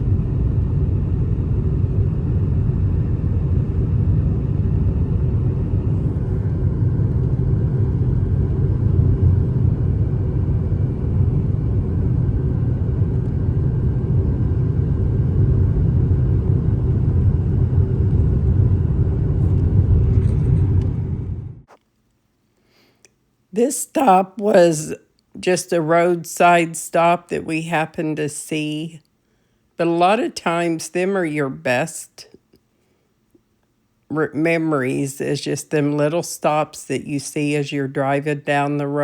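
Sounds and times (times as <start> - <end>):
car driving rumble: 17.7 - 21.7.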